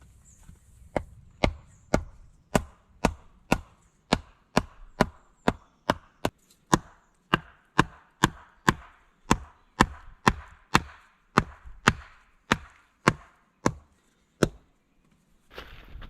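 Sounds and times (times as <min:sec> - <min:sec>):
wood being chopped: 0:00.9 - 0:14.7
faint shuffling: 0:15.2 - 0:16.0.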